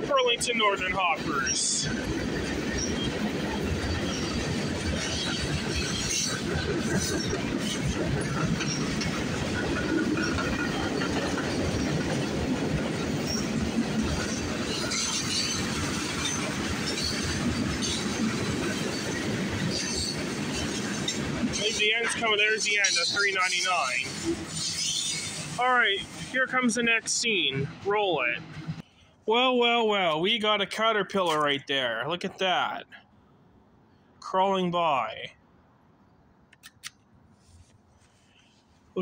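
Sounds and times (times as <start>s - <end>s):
train wheels rumbling on rails: 0.0s - 28.8s.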